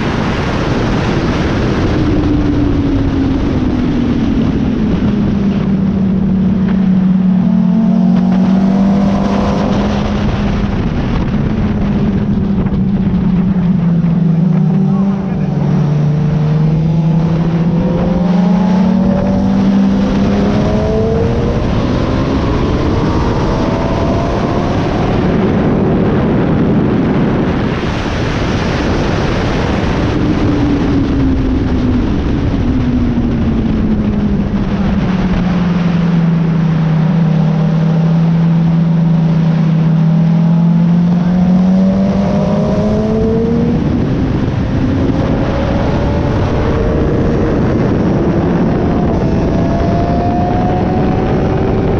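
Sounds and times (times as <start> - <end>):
motorcycle engine revving: 0.0 - 51.9
wind rush: 0.0 - 51.9.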